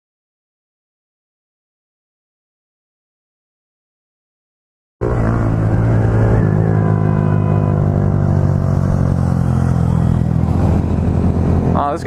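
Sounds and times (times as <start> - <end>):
vehicle engine running: 5.0 - 12.0.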